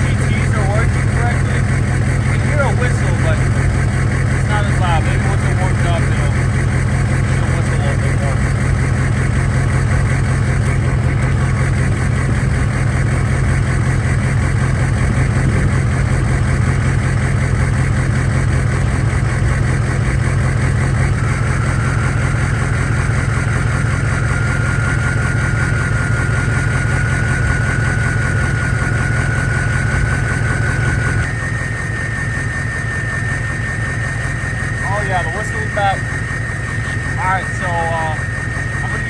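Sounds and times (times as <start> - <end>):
diesel truck engine idling: 0.0 - 39.0
turbo whistle: 21.0 - 39.0.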